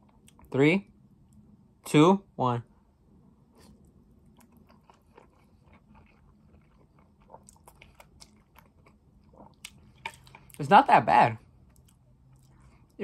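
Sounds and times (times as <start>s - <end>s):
faint chewing of noodles: 3.5s - 10.6s, 11.4s - 13.0s.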